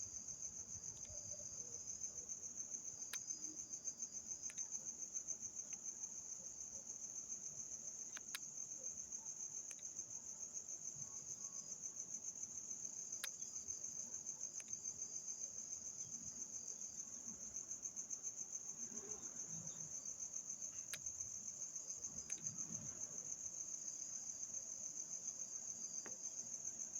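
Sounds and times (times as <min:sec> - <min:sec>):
insects trilling: 0:00.0 - 0:26.9
faint sharp clicks: 0:00.9 - 0:01.2, 0:03.0 - 0:03.3, 0:04.4 - 0:04.7, 0:08.1 - 0:08.5, 0:09.6 - 0:09.9, 0:13.2 - 0:13.5, 0:14.6 - 0:14.8, 0:20.8 - 0:21.1, 0:22.2 - 0:22.6.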